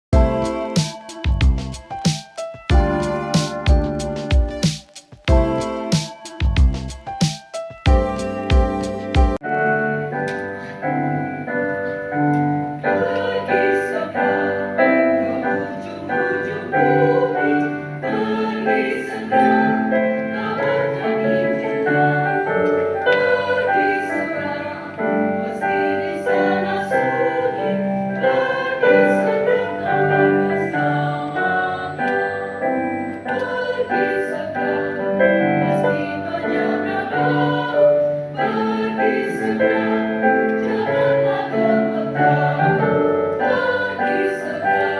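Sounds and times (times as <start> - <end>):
keyboard accompaniment: 0.1 - 44.9
mixed choir singing in harmony: 12.6 - 44.9.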